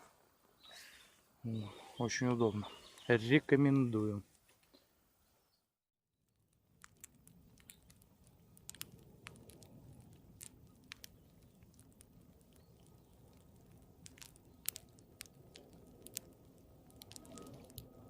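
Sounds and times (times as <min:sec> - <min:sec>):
campfire wood crackling and popping: 0:06.4 - 0:18.0.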